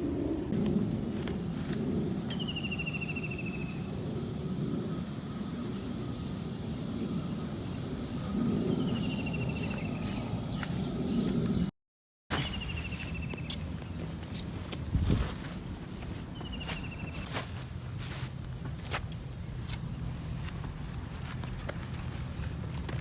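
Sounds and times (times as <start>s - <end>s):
high-pitched insect drone: 0.6s - 11.7s.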